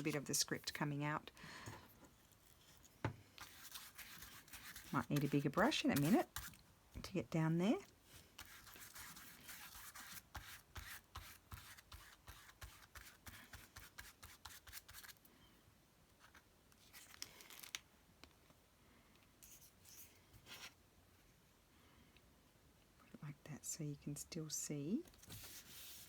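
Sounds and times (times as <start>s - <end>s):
brush stroking over paper: 3.4s - 6.6s, 8.2s - 15.1s, 25.3s - 26.0s
paper rustling: 25.2s - 26.0s.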